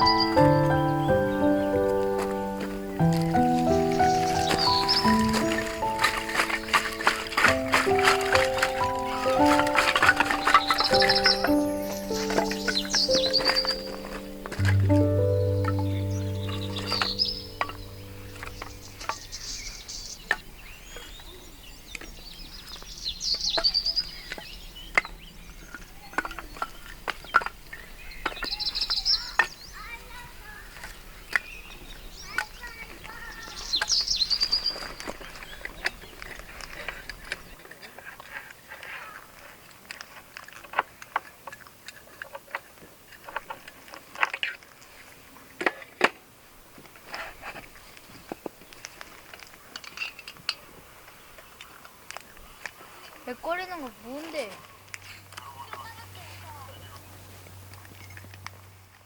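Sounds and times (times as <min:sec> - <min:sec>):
handling knocks and clicks: 0:00.0 - 0:19.5
birds chirping: 0:00.0 - 0:37.9, 0:47.1 - 0:58.4.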